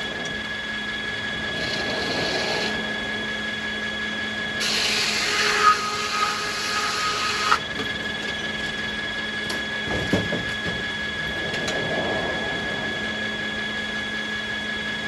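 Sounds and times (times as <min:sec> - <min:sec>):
sawmill machinery whining: 0:00.0 - 0:15.0
saw cutting through wood: 0:01.5 - 0:03.1, 0:04.6 - 0:07.7.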